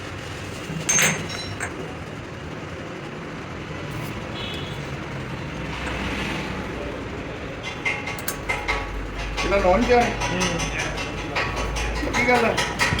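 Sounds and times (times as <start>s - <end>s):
workshop background rumble: 0.0s - 13.0s
metallic clink: 0.8s - 1.9s.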